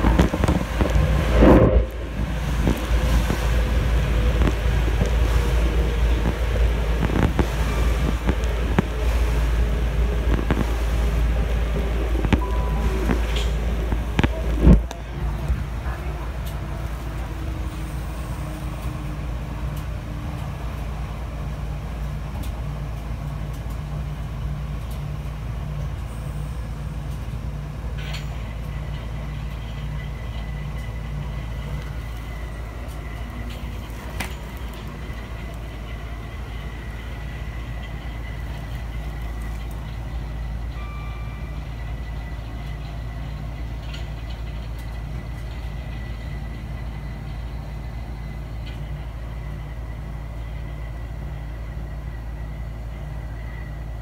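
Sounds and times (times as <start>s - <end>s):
train wheels rumbling on track: 0.0s - 54.0s
thin high tone: 12.4s - 14.8s.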